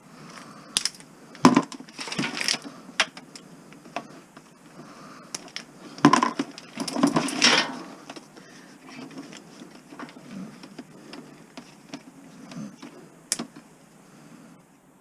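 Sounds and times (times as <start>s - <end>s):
plastic sockets clicking and rattling: 5.3s - 13.7s
loud scraping: 6.8s - 8.1s.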